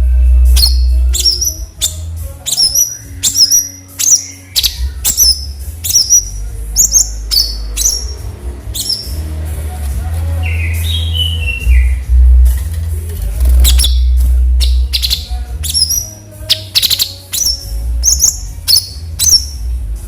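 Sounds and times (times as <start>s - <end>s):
bulbul sharp high chirps: 0.6s - 9.2s
low steady rumble: 4.8s - 15.6s.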